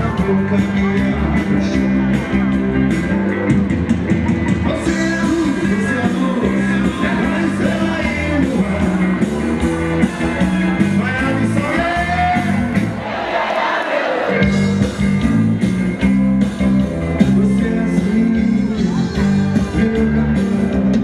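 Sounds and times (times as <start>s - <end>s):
person singing: 0.0s - 2.5s, 4.5s - 9.6s, 10.7s - 12.7s, 17.2s - 21.0s
bass line: 0.0s - 13.0s, 14.3s - 21.0s
guitar: 0.0s - 21.0s.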